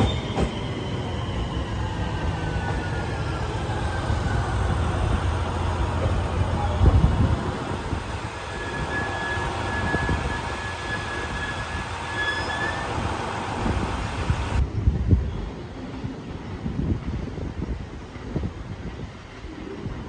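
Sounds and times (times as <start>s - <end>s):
train wheels rumbling: 0.0s - 20.0s
thin wheel squeal: 8.5s - 13.1s.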